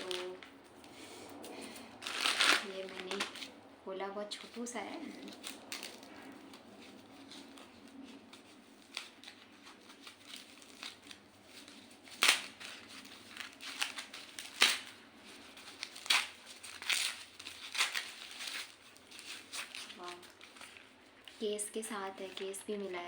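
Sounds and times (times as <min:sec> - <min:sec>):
packaging rustling and clicking: 0:00.0 - 0:03.6, 0:04.3 - 0:21.4
packaging snapping: 0:01.5 - 0:03.5, 0:08.8 - 0:15.0, 0:15.6 - 0:21.4.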